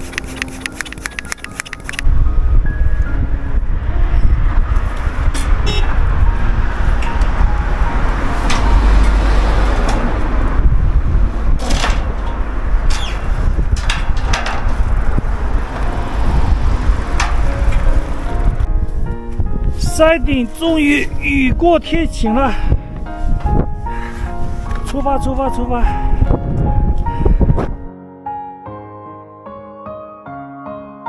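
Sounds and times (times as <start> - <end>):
sharp clicks and knocks: 0.0 - 2.1, 11.6 - 15.2, 17.0 - 18.1
wind buffeting microphone: 0.0 - 27.9.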